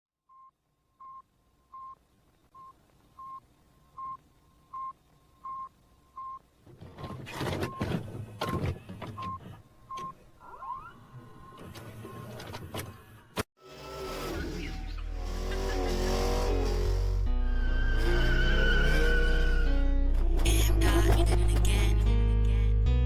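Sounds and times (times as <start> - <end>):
rumbling and rustling noise: 11.3 - 17.4.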